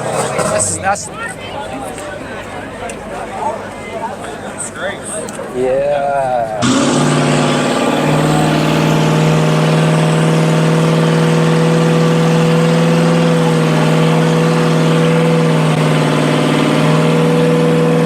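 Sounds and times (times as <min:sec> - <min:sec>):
car engine at high revs: 0:06.6 - 0:18.0.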